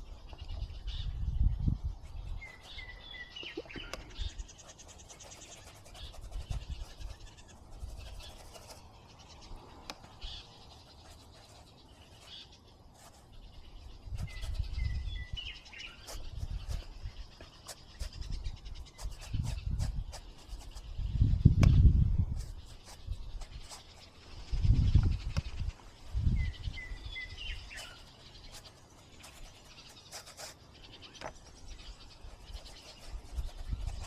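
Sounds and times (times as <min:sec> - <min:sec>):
wind gusts on microphone: 0:00.0 - 0:02.9, 0:13.9 - 0:17.3, 0:18.0 - 0:27.6
songbird singing: 0:00.0 - 0:34.0.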